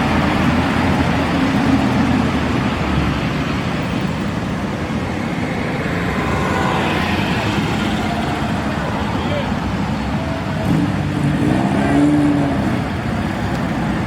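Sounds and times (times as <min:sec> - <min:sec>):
cars driving by: 0:00.0 - 0:14.0.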